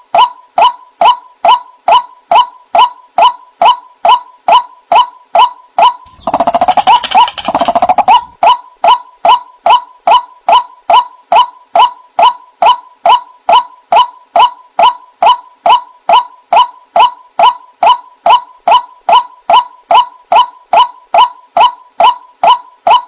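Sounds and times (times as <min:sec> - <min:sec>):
waterhen calling: 0:06.1 - 0:08.6.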